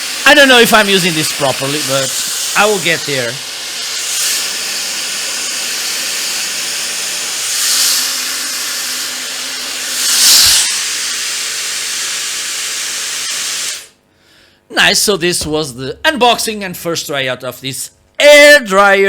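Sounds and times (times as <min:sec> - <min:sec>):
hair dryer blowing air: 0:00.0 - 0:14.0.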